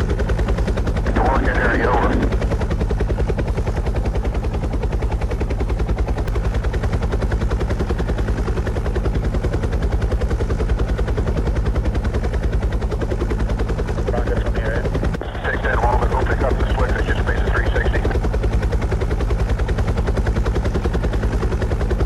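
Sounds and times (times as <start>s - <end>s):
helicopter rotor chopping: 0.0s - 22.0s
low hum: 14.1s - 18.7s.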